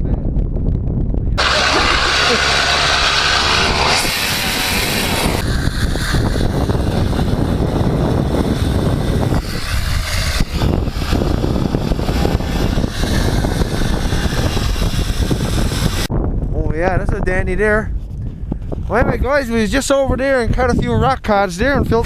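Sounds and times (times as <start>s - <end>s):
snowmobile engine running: 1.4s - 16.1s.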